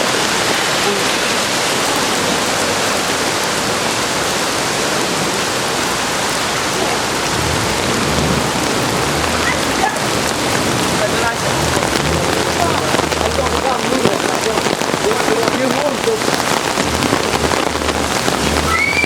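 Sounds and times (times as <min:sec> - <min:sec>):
heavy rain pouring: 0:00.0 - 0:19.0
low rumble: 0:07.0 - 0:15.1, 0:16.2 - 0:19.0.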